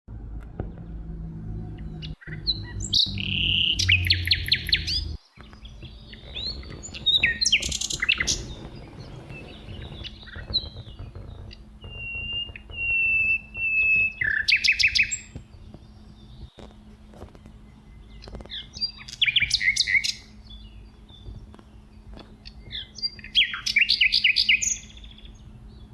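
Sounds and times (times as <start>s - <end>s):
cardinal singing: 0.2s - 10.0s.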